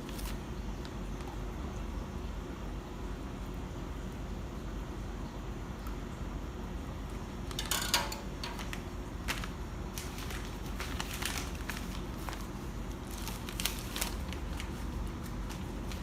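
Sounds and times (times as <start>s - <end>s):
steady low hum: 0.0s - 16.0s
utensils and dishes clattering: 7.5s - 8.7s.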